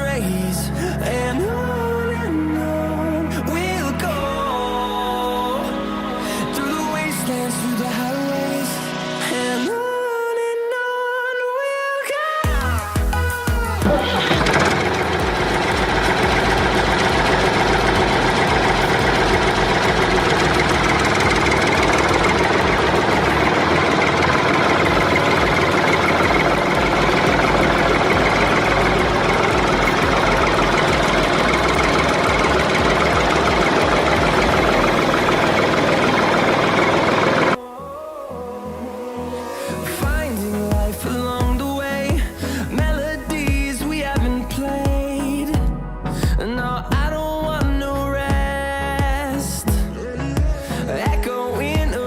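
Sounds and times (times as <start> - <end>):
heavy truck engine running: 12.5 - 37.6.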